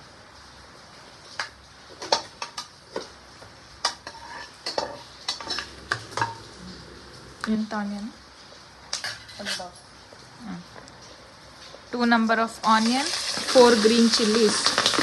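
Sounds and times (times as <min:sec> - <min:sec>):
metal spoon scraping pot: 0:04.0 - 0:06.8.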